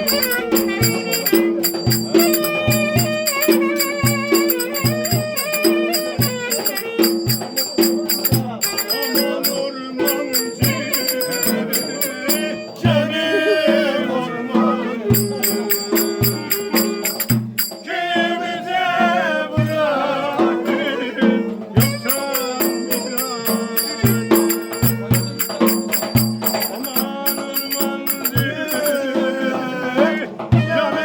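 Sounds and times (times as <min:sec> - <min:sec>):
wavering ornamented melody: 0:00.0 - 0:12.8, 0:15.2 - 0:17.8, 0:21.8 - 0:29.1
jingling percussion: 0:00.0 - 0:13.8, 0:15.1 - 0:18.3, 0:19.6 - 0:20.9, 0:21.8 - 0:29.6
low drum beats: 0:15.2 - 0:17.8.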